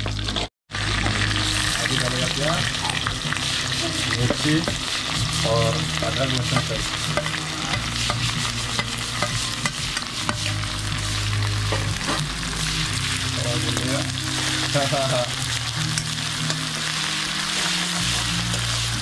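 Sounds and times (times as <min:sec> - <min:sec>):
paste sizzling in hot oil: 0:00.1 - 0:19.0
spoon scraping metal pan: 0:06.3 - 0:10.6.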